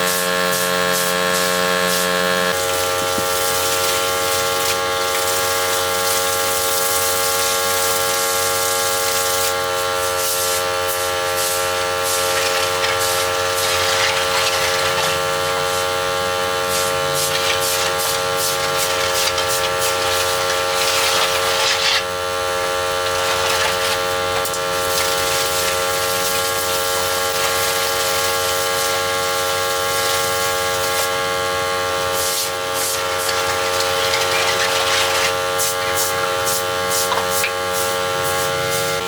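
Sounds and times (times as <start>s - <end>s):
small motor running: 0.0s - 39.0s
hiss: 2.6s - 12.4s, 16.7s - 20.3s.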